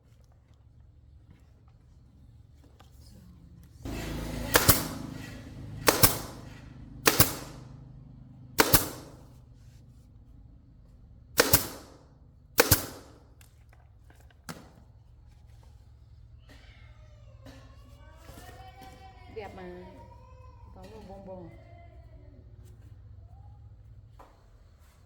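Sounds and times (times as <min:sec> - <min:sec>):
sharp ringing bangs: 0:03.9 - 0:07.8, 0:08.6 - 0:09.4, 0:11.4 - 0:12.0, 0:12.6 - 0:13.2.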